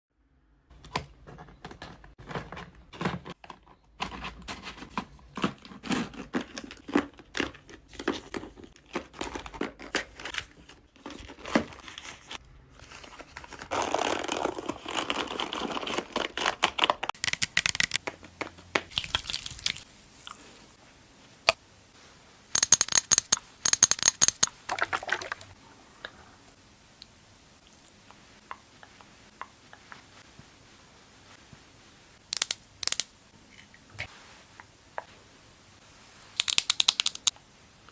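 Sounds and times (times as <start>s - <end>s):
makeup packaging taps and clicks: 22.6s - 24.6s.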